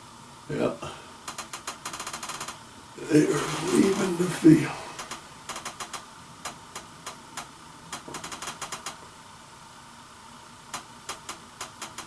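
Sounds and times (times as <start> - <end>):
light irregular clicks: 10.7 - 12.0.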